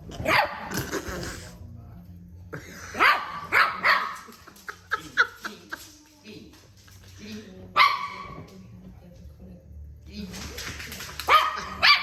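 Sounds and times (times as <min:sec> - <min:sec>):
dogs barking in play: 0:00.0 - 0:00.9, 0:02.8 - 0:04.5, 0:11.1 - 0:12.0.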